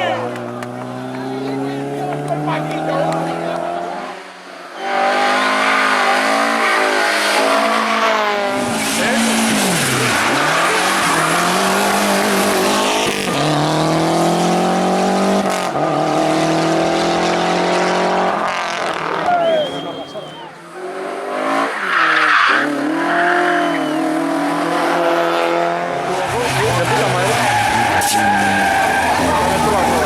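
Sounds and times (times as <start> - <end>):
rally car engine revving: 0.0 - 30.0
gear changes: 8.4 - 20.5, 25.9 - 30.0.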